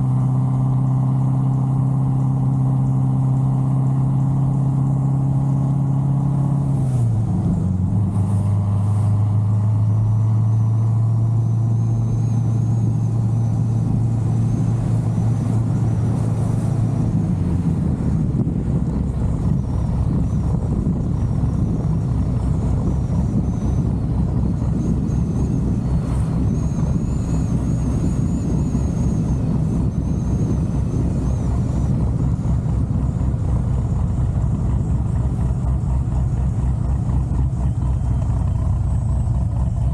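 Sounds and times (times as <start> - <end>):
car engine droning: 0.0 - 39.9
wind noise: 11.8 - 36.2.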